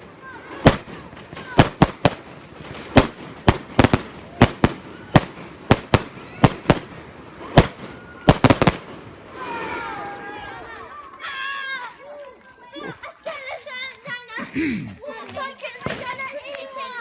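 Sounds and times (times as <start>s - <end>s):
firework bangs: 0.0s - 9.9s, 15.8s - 16.3s
voices: 0.0s - 17.0s.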